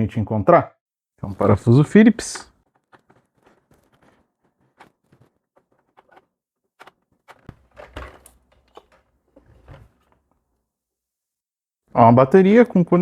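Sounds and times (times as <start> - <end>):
faint plastic clicks and scrapes: 2.6 - 10.4
plastic handling noise: 2.6 - 10.6.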